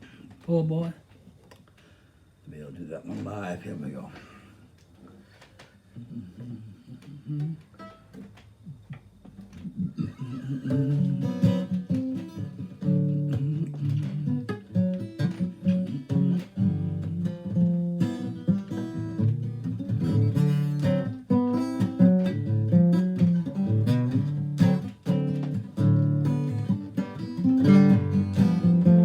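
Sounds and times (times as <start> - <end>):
acoustic guitar chords: 6.0 - 29.0.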